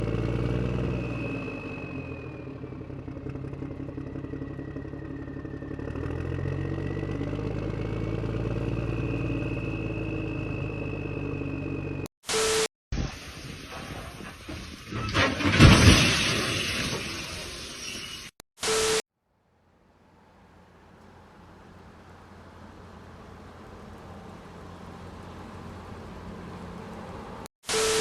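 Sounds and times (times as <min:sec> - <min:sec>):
vehicle engine running: 0:00.0 - 0:12.1, 0:19.5 - 0:27.5
faint high whine: 0:27.7 - 0:28.0.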